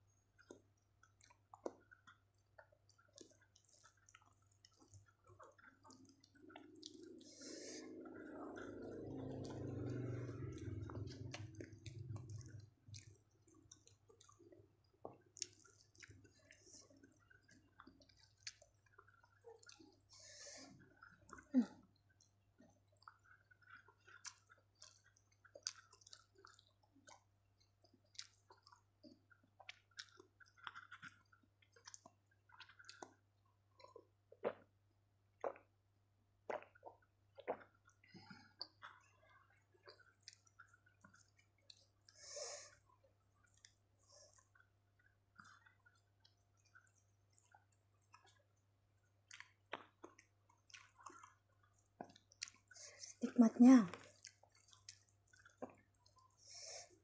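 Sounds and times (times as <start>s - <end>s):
wet chewing: 0.3s - 35.8s, 36.4s - 57.0s
lip smacks and mouth clicks: 49.2s - 53.1s, 53.9s - 56.4s.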